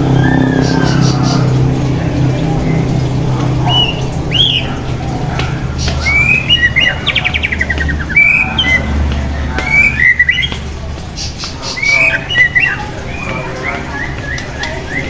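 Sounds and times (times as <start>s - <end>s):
low steady rumble: 0.0s - 11.7s
songbird singing: 0.0s - 15.0s.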